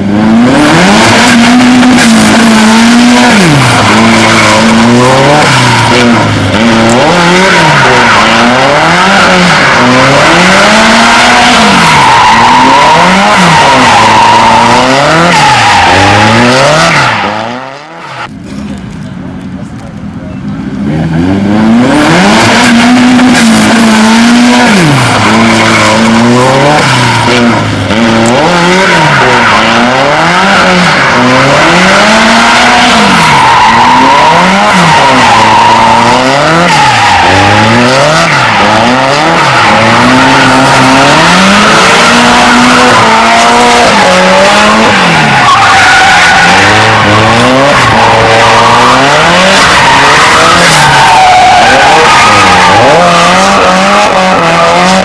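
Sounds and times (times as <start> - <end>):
car engine revving: 0.0 - 18.6, 20.6 - 55.0
tyre squeal: 6.9 - 17.6, 28.3 - 54.7.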